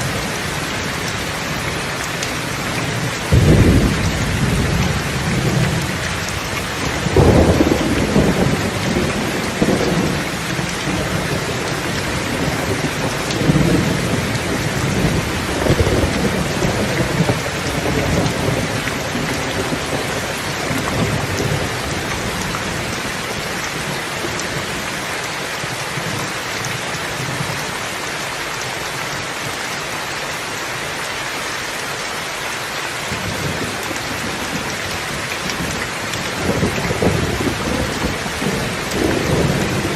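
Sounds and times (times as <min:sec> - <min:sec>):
steady rain: 0:00.0 - 0:39.9
rolling thunder: 0:03.3 - 0:06.4, 0:07.0 - 0:22.9, 0:35.5 - 0:39.9.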